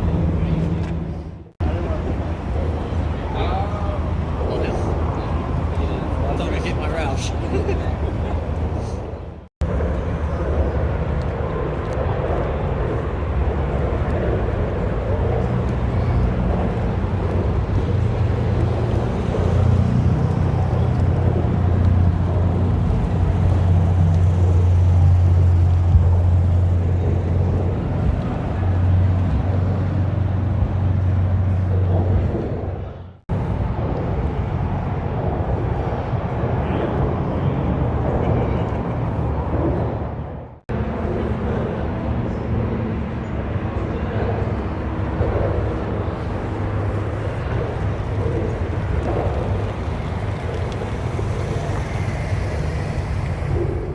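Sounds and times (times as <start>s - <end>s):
car engine rumbling: 0.0s - 35.7s.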